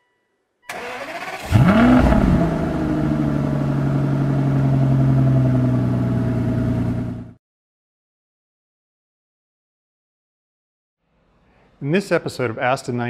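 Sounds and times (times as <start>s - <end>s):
car engine starting and idling: 0.7s - 7.4s.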